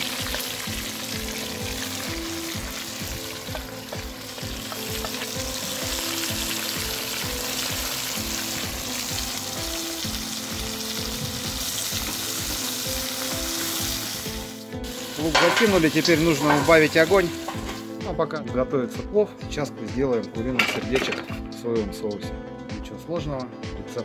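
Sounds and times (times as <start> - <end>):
meat and onions sizzling in oil: 0.0 - 18.1
background music with steady beat: 0.0 - 24.0
metal spoon stirring: 15.2 - 17.8.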